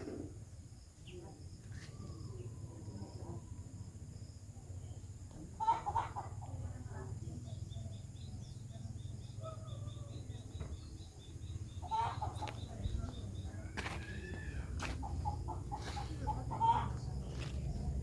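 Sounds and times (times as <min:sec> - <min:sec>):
birds chirping: 0:04.4 - 0:18.0.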